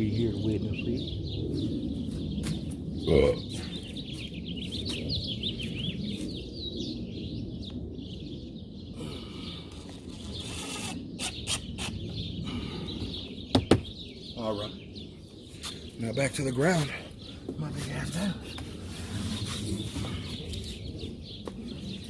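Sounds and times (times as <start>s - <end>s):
small birds chirping: 0.0s - 22.0s
loud knock: 13.5s - 13.9s.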